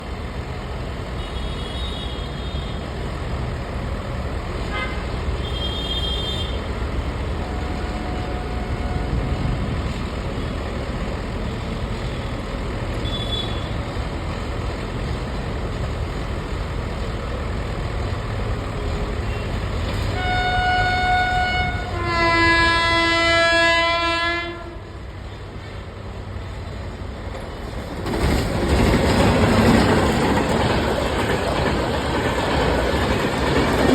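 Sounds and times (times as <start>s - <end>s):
train rumbling: 0.0s - 33.9s
train rushing past: 0.0s - 33.9s
train horn blasts: 4.7s - 6.7s, 7.4s - 9.6s, 13.0s - 13.7s, 19.3s - 25.0s.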